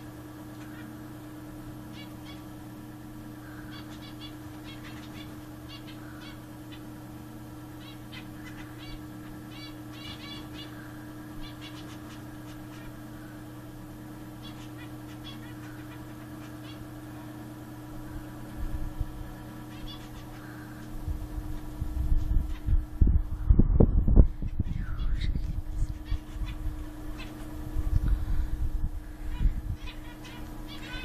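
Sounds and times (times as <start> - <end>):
steady low hum: 0.0 - 31.0
finches chirping: 0.5 - 1.0, 1.9 - 2.6, 3.4 - 7.0, 7.8 - 13.0, 14.4 - 16.9, 19.4 - 20.9, 22.4 - 22.8, 24.4 - 27.6, 29.2 - 31.0.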